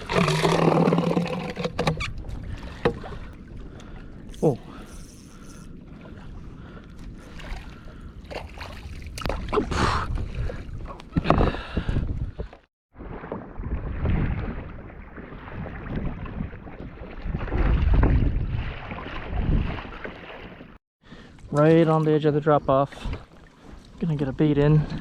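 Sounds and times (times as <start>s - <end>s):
water sloshing around kayak: 0.0s - 25.0s
wind buffeting microphone: 2.0s - 20.0s.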